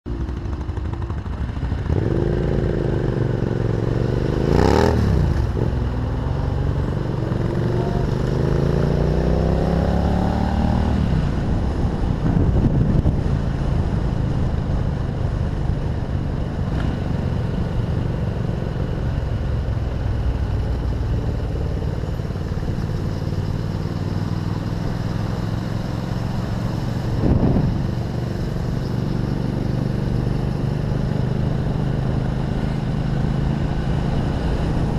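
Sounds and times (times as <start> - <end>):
vehicle engine running: 0.1 - 8.3, 11.0 - 34.9.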